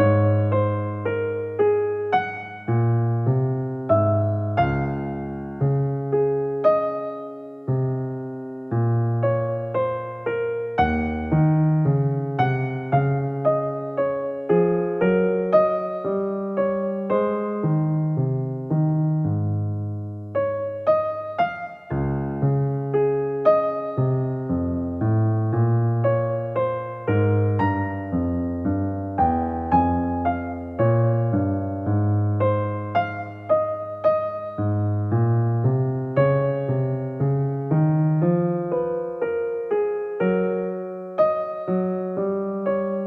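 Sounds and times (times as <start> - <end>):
gentle piano melody: 0.0 - 43.0.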